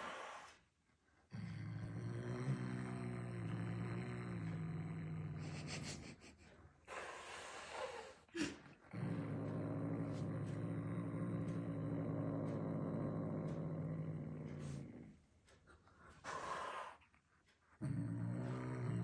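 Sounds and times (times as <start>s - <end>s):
cat growling: 0.0s - 0.6s, 1.3s - 19.0s
cat hissing: 16.2s - 17.0s.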